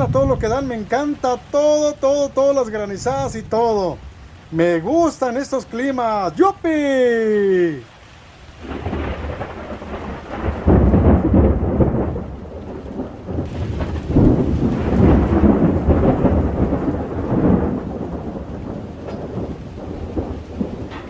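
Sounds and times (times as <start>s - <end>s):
steady rain: 0.0s - 21.0s
thunder rumbling: 0.0s - 21.0s.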